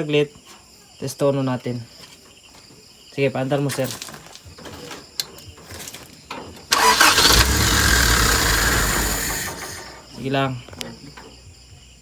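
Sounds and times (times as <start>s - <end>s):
car engine starting and running: 6.7s - 10.3s.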